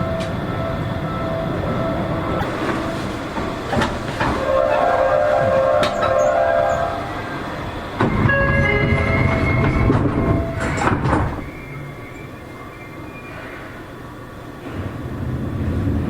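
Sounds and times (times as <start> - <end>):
train doors closing knocks: 0.0 - 12.1
low train rumble: 0.0 - 16.0
chime tones: 8.2 - 9.9.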